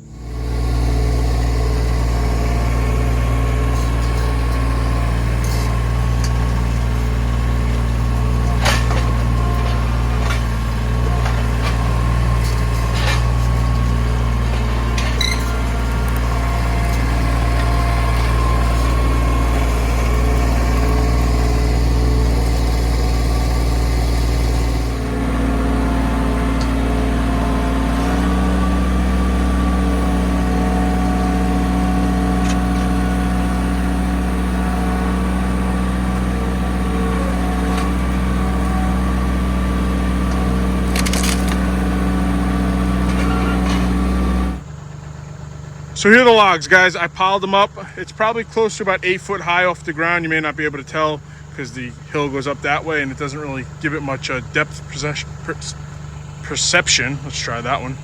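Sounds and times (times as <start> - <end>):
sharp knocks and rattles: 0.0 - 44.6
vehicle engine running: 0.0 - 58.0.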